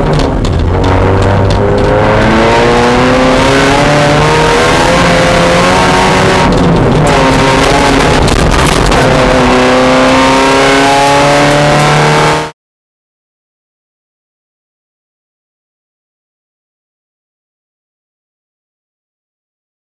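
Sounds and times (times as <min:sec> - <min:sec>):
race car engine accelerating: 0:00.0 - 0:12.5.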